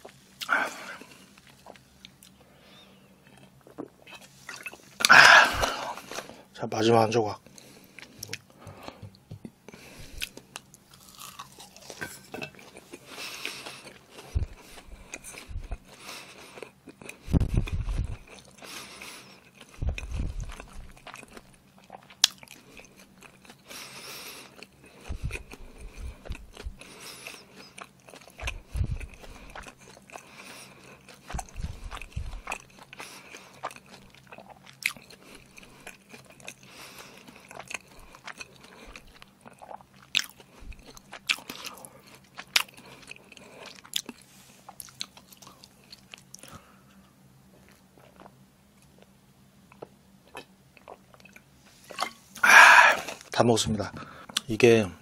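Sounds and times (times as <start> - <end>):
person chewing with wet clicks: 0.0 - 2.4, 7.4 - 53.3, 54.3 - 54.5
dull low thumps: 14.3 - 15.8, 17.2 - 18.3, 19.8 - 21.0, 25.1 - 26.8, 28.4 - 29.2, 31.3 - 32.5.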